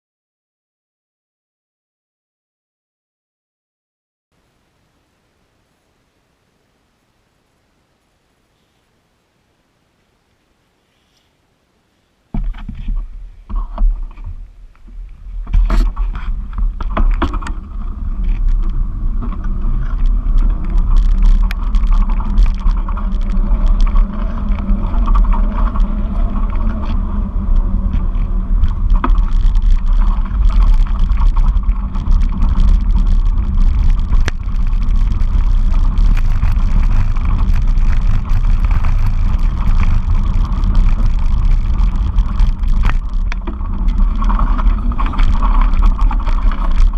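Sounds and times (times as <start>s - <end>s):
bike knocks and rattles: 12.3s - 46.9s
wind buffeting microphone: 12.3s - 46.9s.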